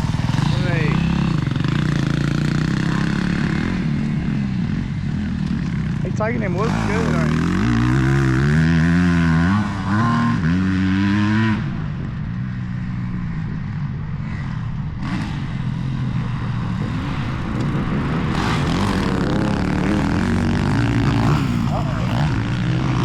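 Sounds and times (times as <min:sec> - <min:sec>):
dirt bike engine revving: 0:00.0 - 0:04.6, 0:05.2 - 0:11.7, 0:16.8 - 0:23.0
distant motorbikes running: 0:00.0 - 0:23.0.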